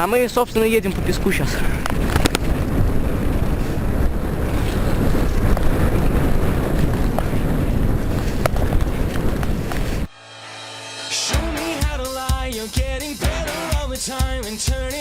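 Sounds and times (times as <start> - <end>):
wind buffeting microphone: 0.0 - 10.1
bike rattling clicks: 1.7 - 2.8.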